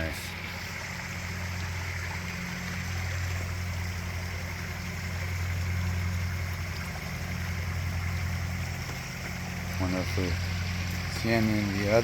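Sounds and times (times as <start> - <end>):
low steady hum: 0.0 - 12.0
pond waterfall splashing: 0.0 - 12.0.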